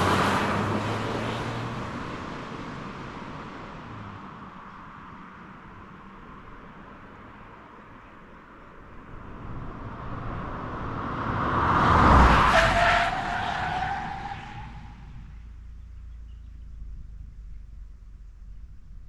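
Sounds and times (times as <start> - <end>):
car driving past: 0.0 - 4.4, 8.8 - 16.2.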